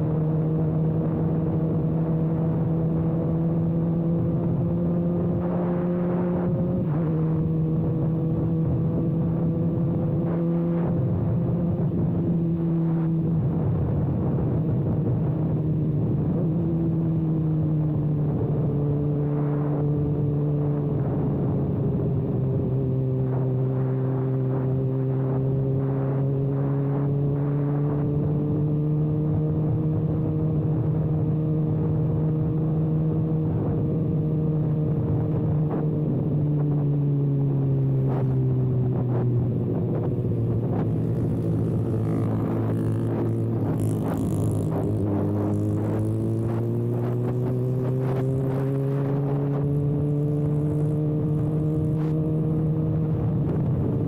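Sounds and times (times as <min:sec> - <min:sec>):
motorcycle engine running: 0:38.0 - 0:54.0.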